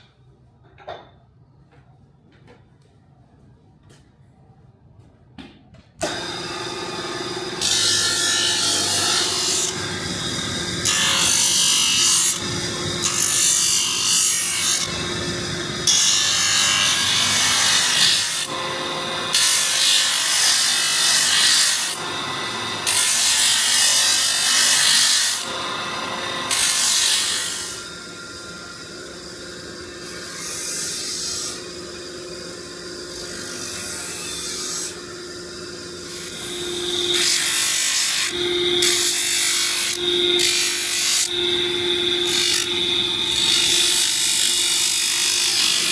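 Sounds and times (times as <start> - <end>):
power sander running: 6.0 - 19.6, 21.2 - 23.6, 35.0 - 45.9.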